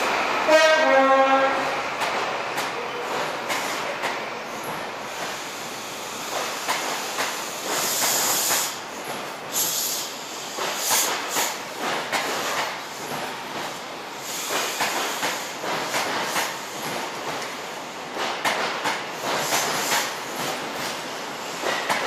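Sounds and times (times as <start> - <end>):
train coaches rolling past: 0.0 - 22.0
bursts of hissing: 5.1 - 8.8.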